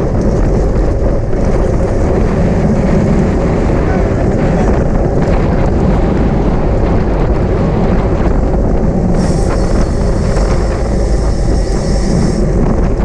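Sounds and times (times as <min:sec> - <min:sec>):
wind rush on microphone: 0:00.0 - 0:13.0
higher hiss: 0:09.2 - 0:12.6.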